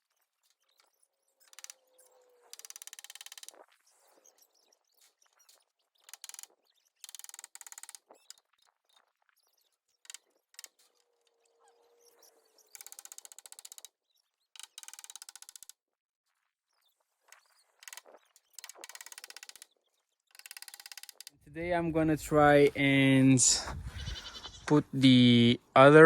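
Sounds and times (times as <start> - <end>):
rapid mechanical clicking: 2.5 - 3.6, 6.0 - 8.3, 12.8 - 13.9, 14.6 - 15.7, 17.8 - 21.4.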